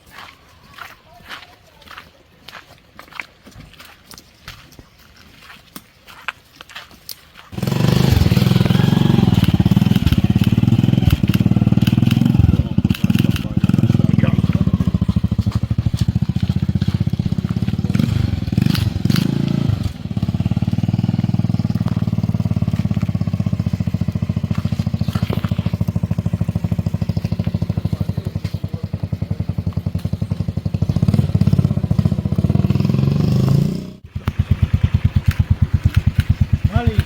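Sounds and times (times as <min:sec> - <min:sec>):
engine running with rapid pulsing: 0:07.6 - 0:37.0.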